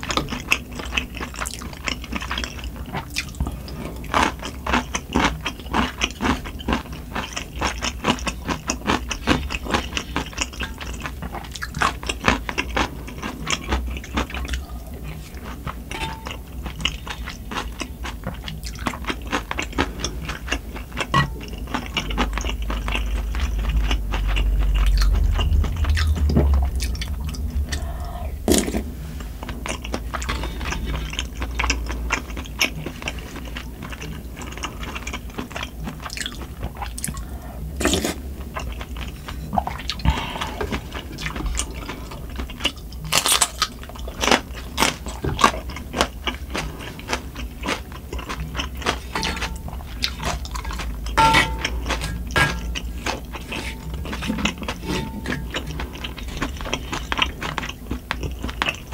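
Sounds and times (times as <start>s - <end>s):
wet chewing with crunches: 0.0s - 58.9s
wind and rain hum: 23.2s - 31.1s
spoon knocking in pan: 51.2s - 51.8s.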